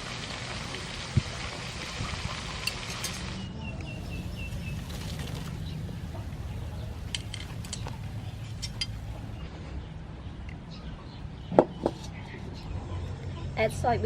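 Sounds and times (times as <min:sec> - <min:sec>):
bird chirping: 0:03.0 - 0:09.4.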